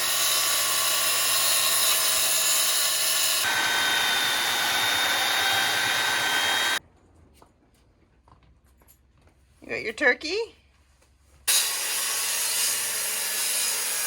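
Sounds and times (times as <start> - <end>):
power tool running on wood: 0.0 - 6.8.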